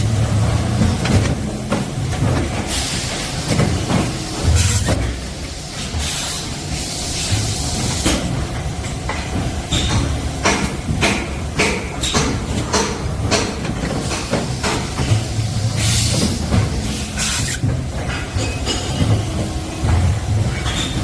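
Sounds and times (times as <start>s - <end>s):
hissing air bursts: 2.7s - 8.2s, 14.0s - 17.7s
machine humming: 15.2s - 21.0s.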